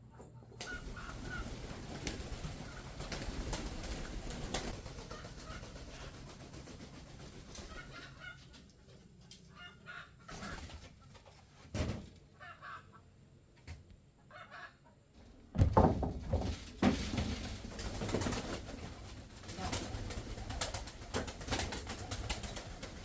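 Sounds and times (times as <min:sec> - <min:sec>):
chickens clucking: 0:00.0 - 0:13.3, 0:14.2 - 0:15.3
handling thumps: 0:15.4 - 0:17.5.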